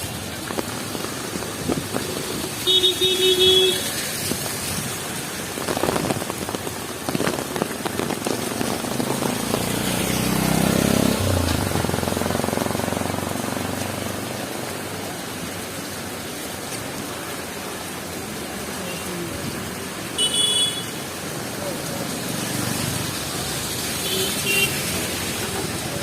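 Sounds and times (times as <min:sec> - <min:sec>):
heavy rain on the street: 0:00.0 - 0:26.0
car horn: 0:02.6 - 0:03.9, 0:20.2 - 0:20.9
vehicle engine passing: 0:08.8 - 0:14.3.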